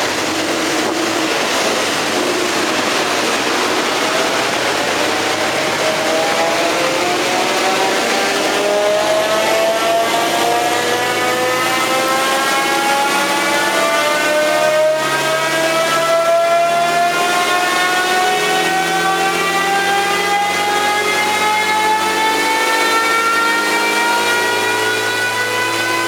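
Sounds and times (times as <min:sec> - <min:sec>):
spinning wheels and rollers: 0:00.0 - 0:16.7
car engine running under load: 0:00.0 - 0:26.0.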